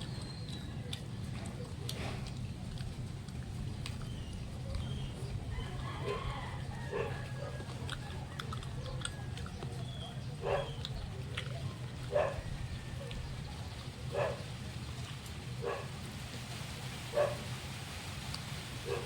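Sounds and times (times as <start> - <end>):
dog barking: 5.8 - 9.3, 10.3 - 13.1, 14.1 - 14.6, 15.6 - 16.0, 17.1 - 17.6.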